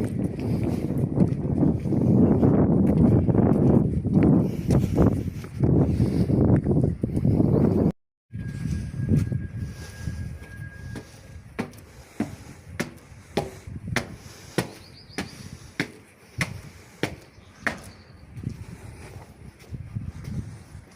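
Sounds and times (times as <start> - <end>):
sharp knocks: 11.0 - 17.9.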